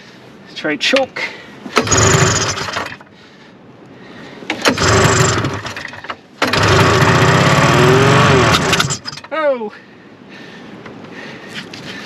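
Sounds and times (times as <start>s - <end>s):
two-stroke engine sputtering: 1.7s - 3.1s, 4.5s - 9.3s.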